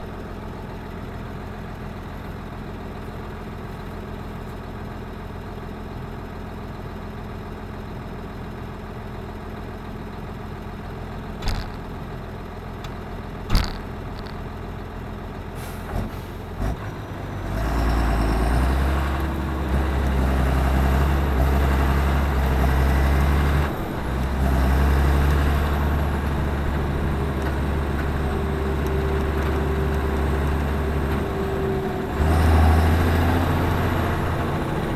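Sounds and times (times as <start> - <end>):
tractor diesel engine: 0.0 - 34.9
sharp knocks: 11.4 - 11.8, 13.5 - 14.3
high engine whine: 11.4 - 14.9, 17.9 - 34.9.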